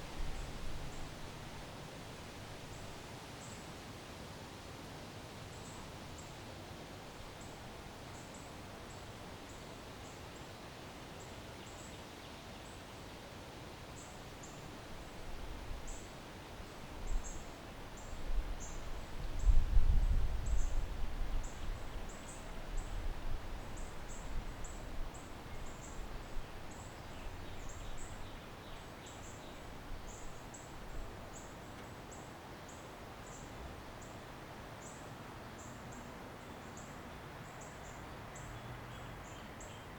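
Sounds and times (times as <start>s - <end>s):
steady background hiss: 0.0s - 39.9s
wind rumbling on microphone: 18.0s - 28.4s.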